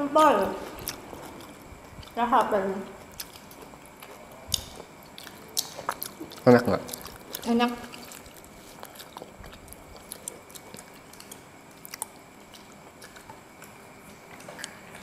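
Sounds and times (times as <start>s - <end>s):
people chewing and biting: 0.4s - 15.0s.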